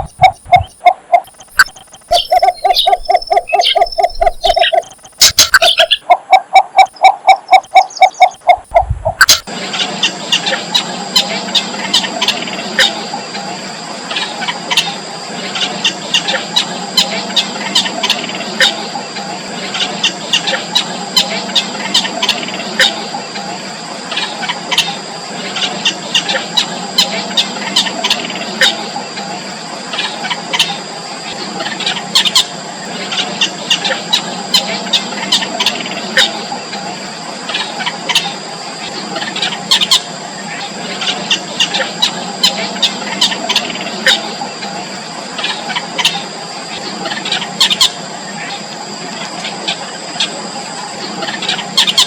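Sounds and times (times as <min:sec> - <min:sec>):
nestling birds squeaking: 0:00.0 - 0:13.0
steady high-pitched whine: 0:00.0 - 0:52.0.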